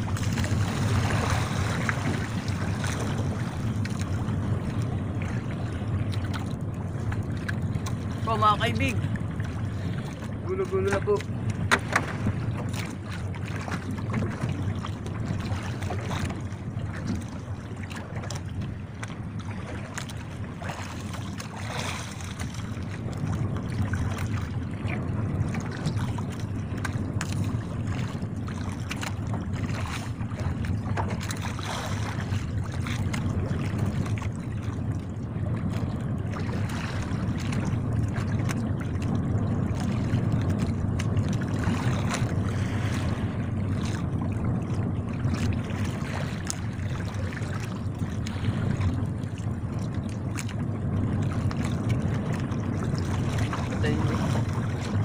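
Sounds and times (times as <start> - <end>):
sea noise: 0.0 - 55.0
wind: 0.0 - 55.0.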